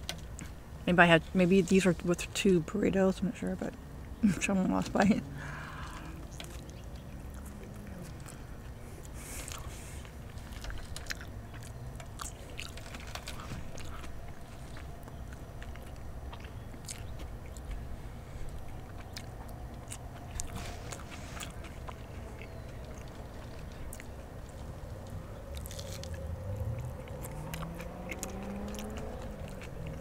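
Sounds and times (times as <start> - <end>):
person chewing crunchy food: 5.7 - 30.0
lettuce crackling under fingers: 18.5 - 30.0.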